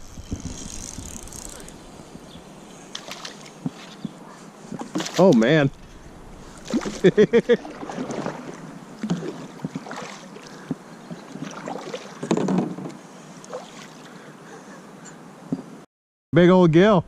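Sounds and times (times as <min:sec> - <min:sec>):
water splashing: 0:00.4 - 0:12.4, 0:13.4 - 0:14.1.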